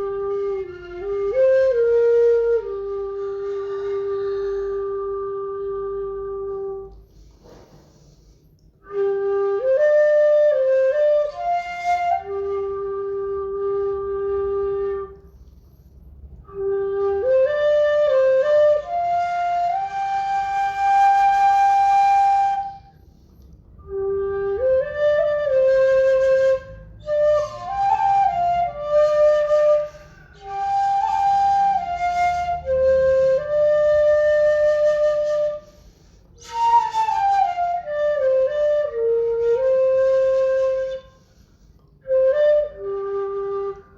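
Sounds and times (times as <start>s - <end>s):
bamboo flute melody: 0.0s - 43.9s.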